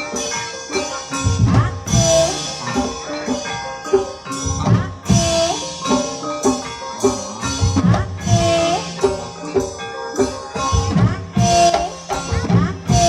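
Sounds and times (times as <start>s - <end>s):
hand drums beating: 0.0s - 13.0s
struck mallet instruments ringing: 0.0s - 13.0s.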